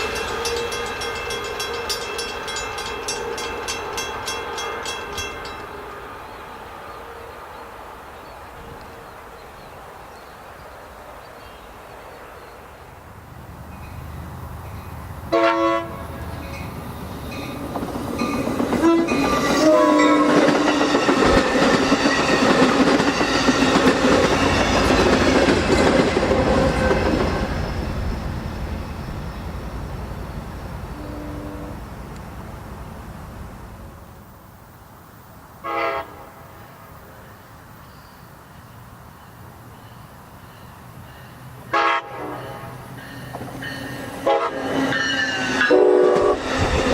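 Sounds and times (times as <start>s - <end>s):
train rumble and wheel clatter: 0.0s - 46.9s
locomotive air horn: 15.3s - 16.2s, 18.8s - 20.6s, 30.9s - 31.9s, 35.6s - 36.6s, 41.7s - 42.8s, 44.2s - 46.5s.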